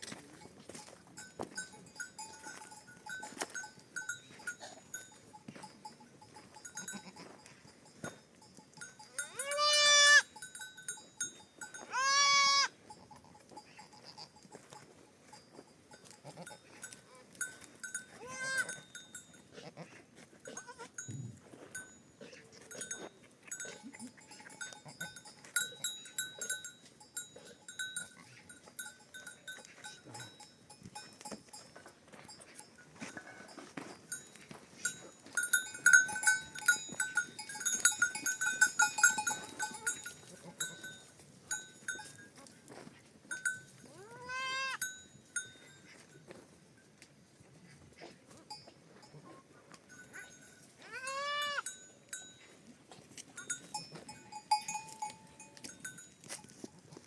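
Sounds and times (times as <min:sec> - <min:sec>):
animal bells jingling: 0:00.0 - 0:57.0
animal bleating: 0:06.7 - 0:07.3, 0:09.3 - 0:10.3, 0:11.9 - 0:14.6, 0:18.2 - 0:18.8, 0:19.5 - 0:21.2, 0:43.9 - 0:44.8, 0:50.8 - 0:51.7.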